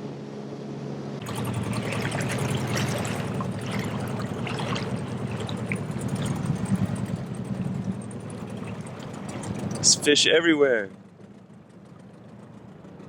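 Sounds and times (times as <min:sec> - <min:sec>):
boat engine running: 0:00.0 - 0:13.0
water splashing past hull: 0:01.2 - 0:10.6.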